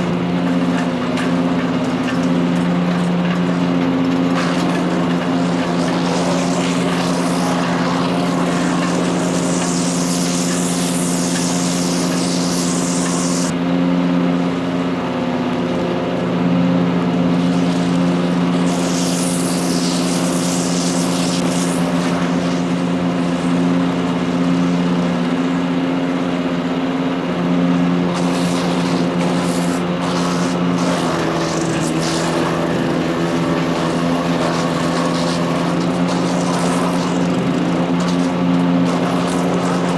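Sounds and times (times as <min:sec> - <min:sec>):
wood chipper engine running: 0:00.0 - 0:39.9
high rushing hiss: 0:04.9 - 0:13.5.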